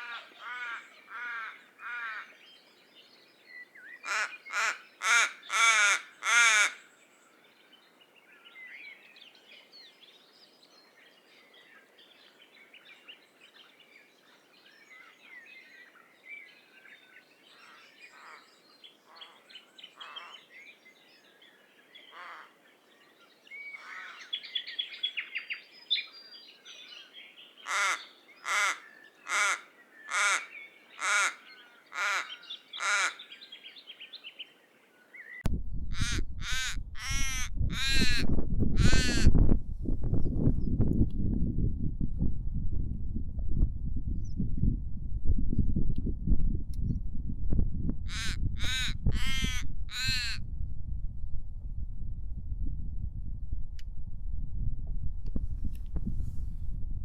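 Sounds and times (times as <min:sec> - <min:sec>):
raven harsh calls: 0:00.0 - 0:02.4, 0:04.0 - 0:06.8, 0:22.0 - 0:22.6, 0:23.8 - 0:24.3, 0:27.6 - 0:33.3, 0:36.0 - 0:38.2, 0:48.1 - 0:50.4.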